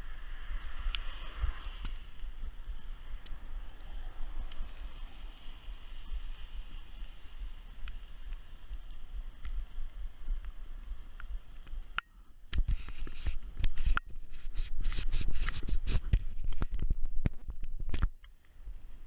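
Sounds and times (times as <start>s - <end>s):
scraping and rubbing: 12.6s - 17.5s.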